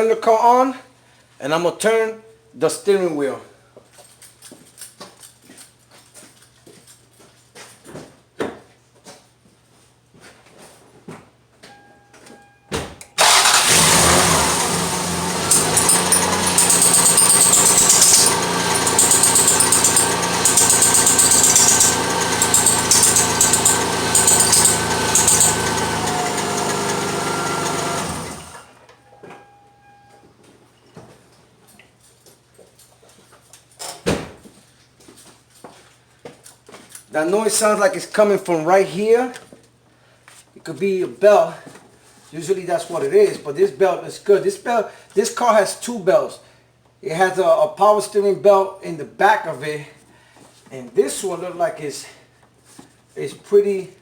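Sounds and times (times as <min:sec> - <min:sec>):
car engine starting and running: 0:13.2 - 0:28.7
high-pitched belt squeal: 0:15.4 - 0:26.2.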